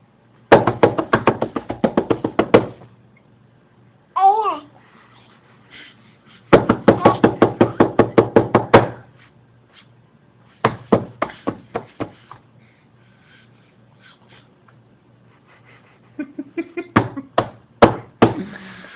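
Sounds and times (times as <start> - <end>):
rapid knocking on hard surface: 0.5 - 2.8, 6.5 - 9.0, 10.6 - 12.4, 16.9 - 18.4.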